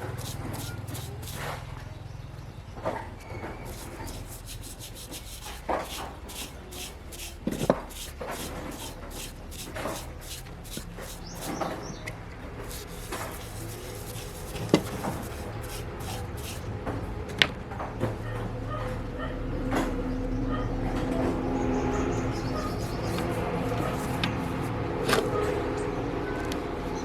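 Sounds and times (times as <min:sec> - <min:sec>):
rubbing and scraping of parts: 0:00.0 - 0:01.6, 0:03.6 - 0:11.8, 0:12.6 - 0:16.7, 0:22.5 - 0:25.4.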